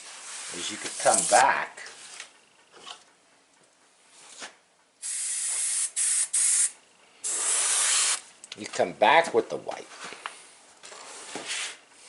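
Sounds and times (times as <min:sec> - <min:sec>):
airbrush spraying hissing air: 0:00.1 - 0:01.5, 0:05.0 - 0:08.2.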